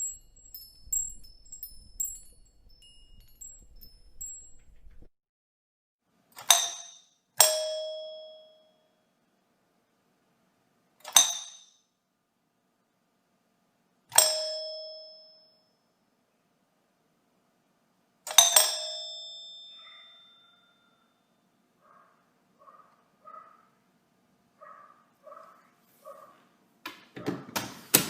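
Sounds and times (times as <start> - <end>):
doorbell chime ding: 6.5 - 9.0, 14.1 - 15.8, 18.3 - 21.3.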